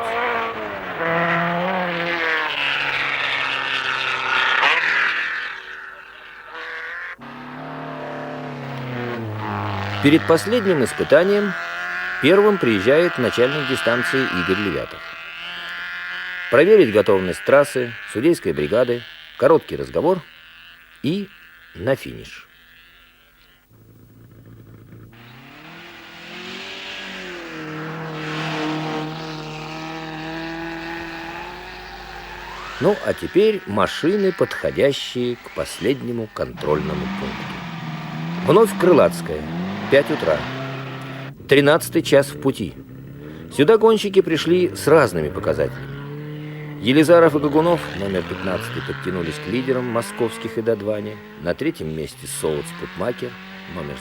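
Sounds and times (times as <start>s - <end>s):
car passing by: 0.0s - 12.2s, 25.2s - 41.4s
rally car engines at high revs: 0.0s - 54.0s.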